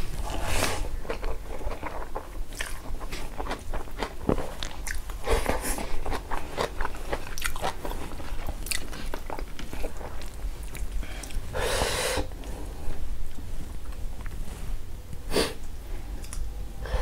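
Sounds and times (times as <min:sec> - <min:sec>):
wet chewing and smacking: 0:00.9 - 0:11.5
noisy breath: 0:10.9 - 0:13.0, 0:16.8 - 0:17.0.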